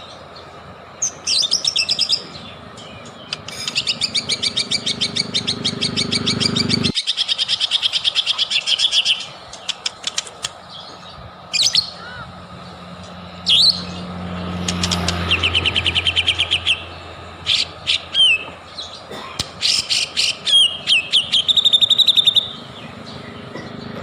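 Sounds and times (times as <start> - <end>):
bird singing whistled notes: 1.0 - 9.7, 13.4 - 14.1, 15.2 - 18.8, 19.6 - 23.5
bird fast trills: 1.0 - 24.0.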